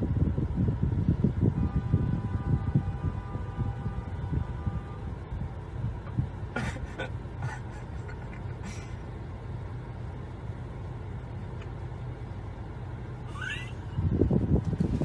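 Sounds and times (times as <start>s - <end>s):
car driving rumble: 0.0s - 15.0s.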